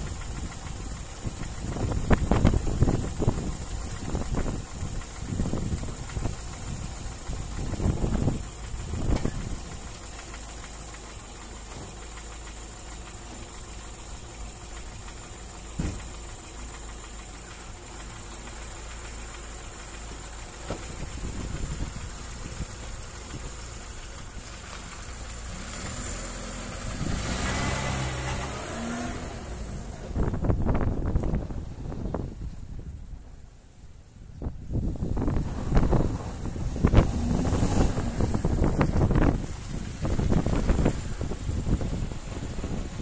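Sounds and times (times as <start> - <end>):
car engine running: 0.0 - 43.0
sharp engine knock: 14.8 - 16.5.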